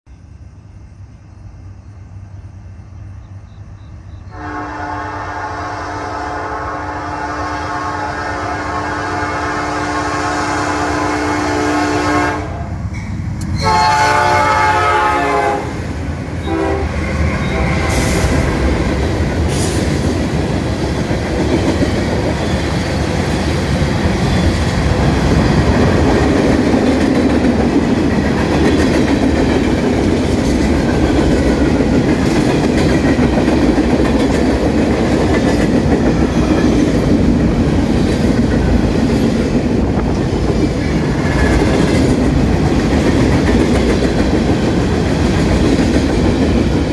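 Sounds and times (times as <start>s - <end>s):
train rumbling and clattering by: 0.1s - 46.9s
train air horn: 4.3s - 12.8s, 13.6s - 15.8s, 16.4s - 18.5s.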